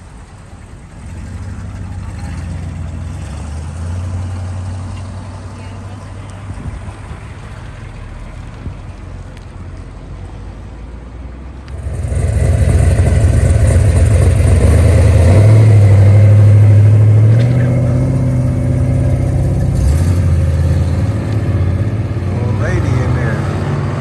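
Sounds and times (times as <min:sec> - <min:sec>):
car engine revving: 0:11.6 - 0:24.0.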